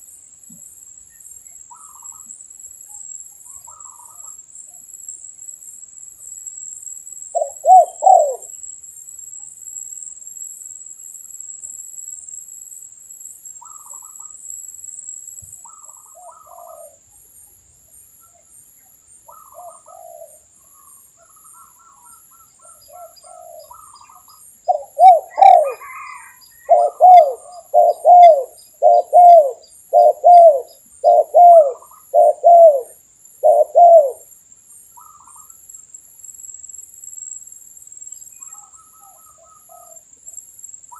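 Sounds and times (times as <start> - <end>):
high-pitched insect whine: 0.0 - 40.9
doves cooing: 7.4 - 8.5, 24.7 - 34.2.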